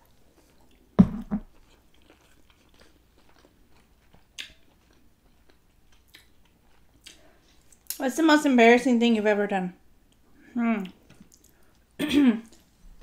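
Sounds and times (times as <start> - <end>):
double thump: 1.0 - 1.4
chewing: 1.5 - 8.0, 10.8 - 11.8.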